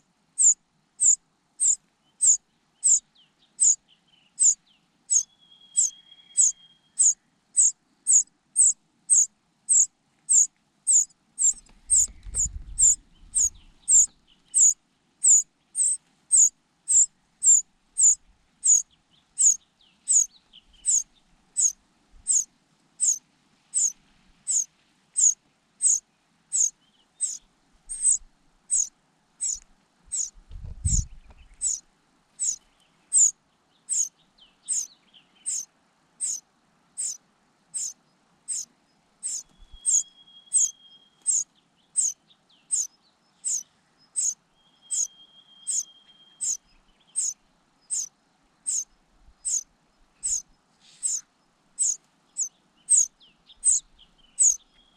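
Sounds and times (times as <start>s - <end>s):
chick begging calls: 5.8s - 18.8s, 26.6s - 30.3s, 39.2s - 40.7s.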